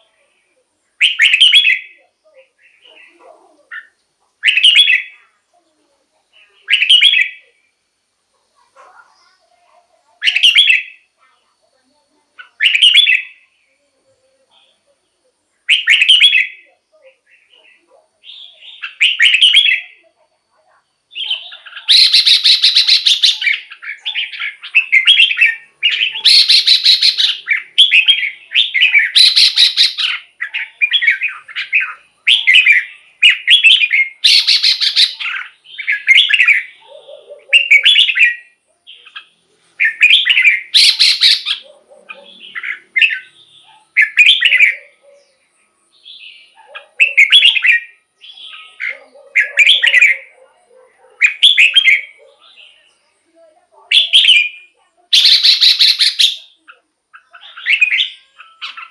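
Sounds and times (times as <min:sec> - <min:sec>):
bird singing whistled phrases: 0:01.0 - 0:02.0, 0:04.4 - 0:05.2, 0:06.6 - 0:07.4, 0:10.2 - 0:11.1, 0:12.5 - 0:13.4, 0:15.7 - 0:16.7, 0:18.3 - 0:20.0, 0:21.1 - 0:36.7, 0:39.8 - 0:41.6, 0:53.9 - 0:56.6.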